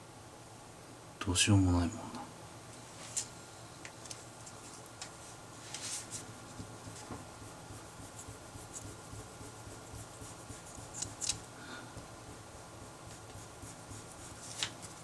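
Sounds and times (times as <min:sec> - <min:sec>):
pen scratching on paper: 0:05.9 - 0:15.0.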